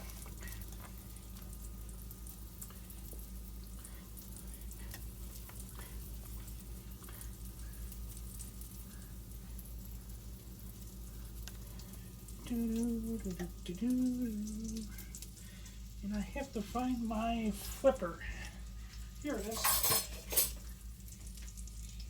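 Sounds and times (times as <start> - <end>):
small crackles: 0.0 - 19.5, 20.5 - 22.0
batter sizzling in a frying pan: 0.0 - 22.0
steady low hum: 0.0 - 22.0.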